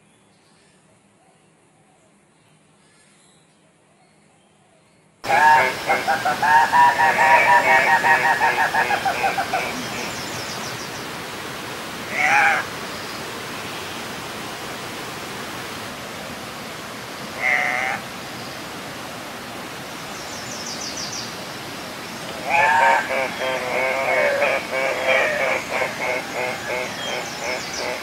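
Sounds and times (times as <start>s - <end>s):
steady hiss: 5.2s - 28.0s
bird squawks: 17.4s - 18.0s, 22.3s - 28.0s.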